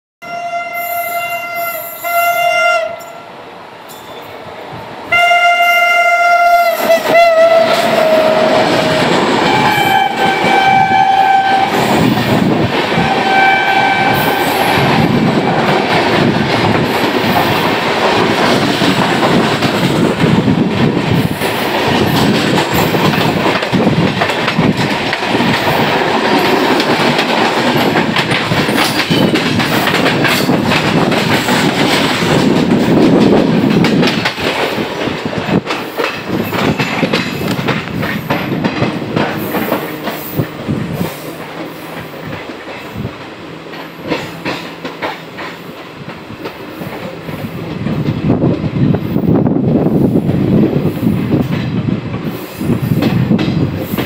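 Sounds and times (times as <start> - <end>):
locomotive horn blasts: 0.2 - 3.3, 5.1 - 8.6, 9.4 - 11.8, 13.0 - 14.7
train wheels rumbling and clattering: 6.5 - 54.0.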